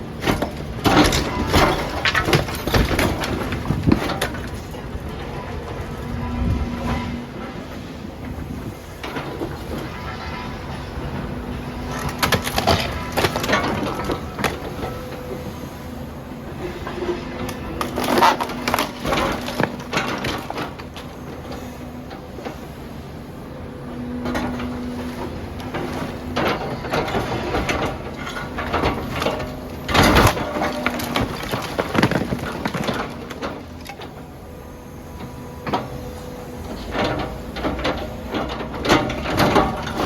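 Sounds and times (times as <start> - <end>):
masonry crunching and cracking: 0.0 - 6.4, 8.6 - 15.3, 16.8 - 21.5, 25.3 - 34.3
machine engine drone: 0.8 - 40.0.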